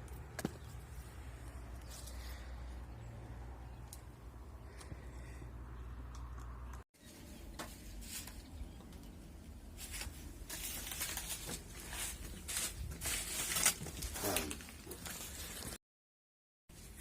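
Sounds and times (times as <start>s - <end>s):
dry debris rustling and crackling: 7.4s - 15.8s.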